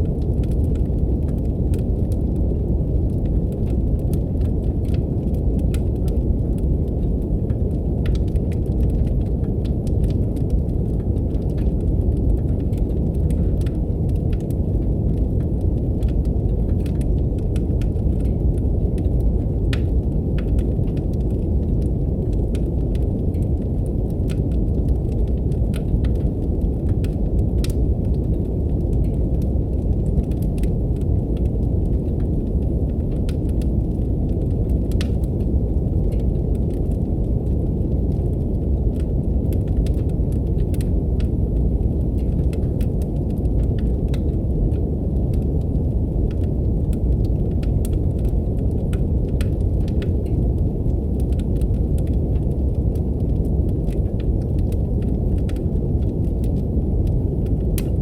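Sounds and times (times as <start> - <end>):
brown noise hiss: 0.0 - 58.0
wood fire crackling: 0.0 - 58.0.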